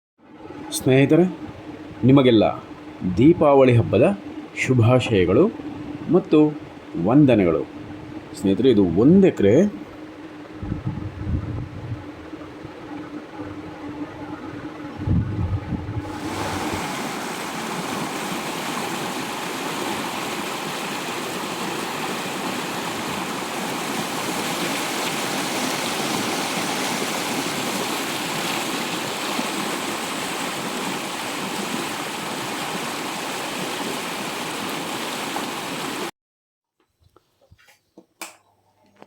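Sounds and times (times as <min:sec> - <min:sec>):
water rushing along a canal: 0:15.8 - 0:36.1.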